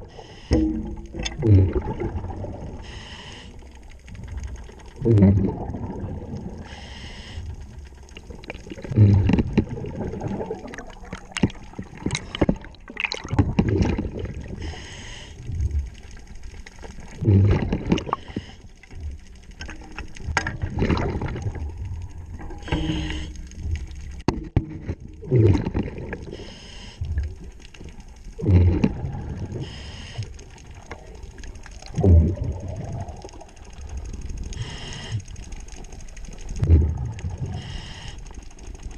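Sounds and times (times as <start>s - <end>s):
underwater bubbles gurgling: 0.0s - 38.9s
hissing regulator inhales: 0.1s - 0.6s, 2.8s - 3.7s, 6.6s - 7.6s, 14.6s - 15.5s, 18.1s - 18.8s, 22.6s - 23.6s, 26.3s - 27.1s, 29.6s - 30.4s, 34.6s - 35.4s, 37.4s - 38.4s.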